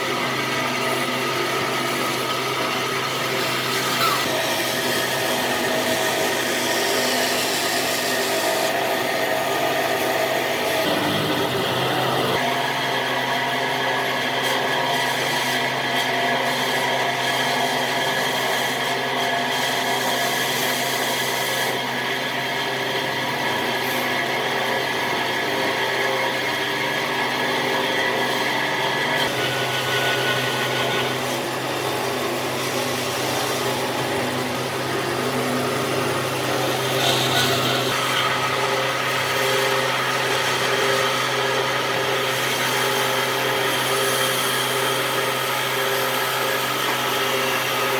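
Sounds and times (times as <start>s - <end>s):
electric power tool working wood: 0.0s - 47.9s.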